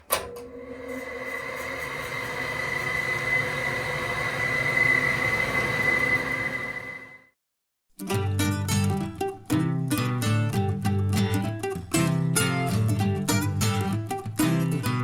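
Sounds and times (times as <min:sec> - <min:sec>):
fan motor whining: 0:00.0 - 0:07.3.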